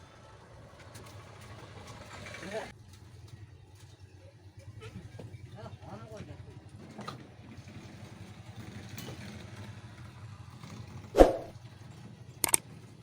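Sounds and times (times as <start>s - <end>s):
sharp knock: 11.2s - 11.5s.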